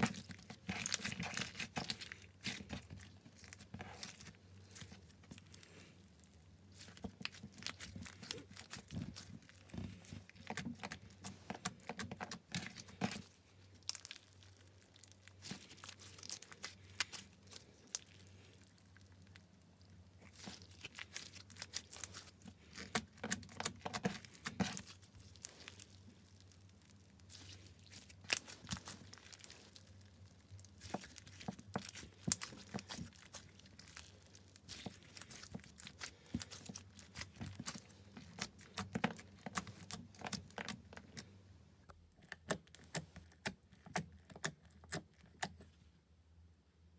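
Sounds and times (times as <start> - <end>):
slime sticky clicks and crackles: 20.2 - 41.3.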